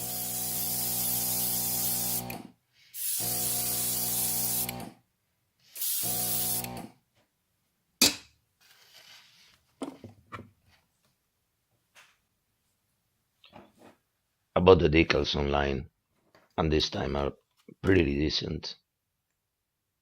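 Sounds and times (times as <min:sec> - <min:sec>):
airbrush spraying hiss: 0:00.0 - 0:02.3, 0:03.0 - 0:04.8, 0:05.8 - 0:06.7.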